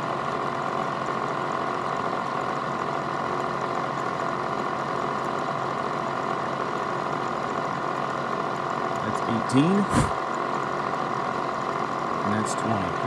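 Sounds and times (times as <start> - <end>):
milling machine spindle whine: 0.0 - 13.0.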